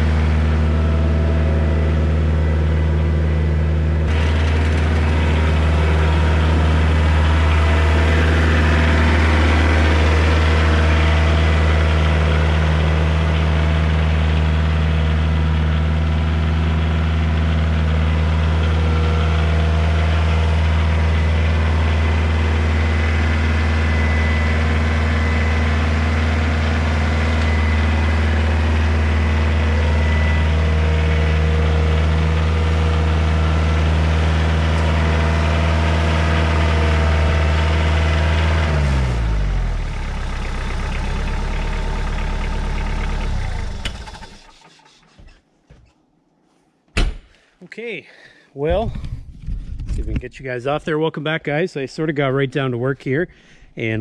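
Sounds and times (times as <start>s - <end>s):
tractor engine droning: 0.0s - 45.9s.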